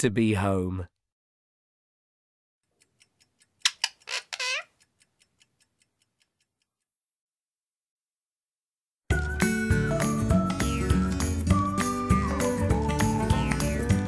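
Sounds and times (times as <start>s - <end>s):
clock-like ticks: 2.7s - 6.9s.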